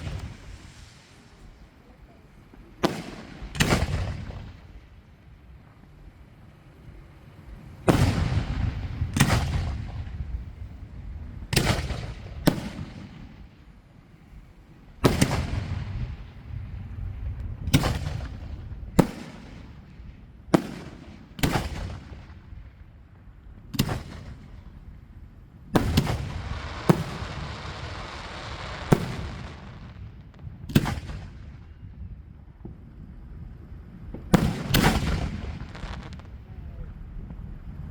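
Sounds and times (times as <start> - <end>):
fireworks bangs with echoing rumble: 0.0 - 37.9.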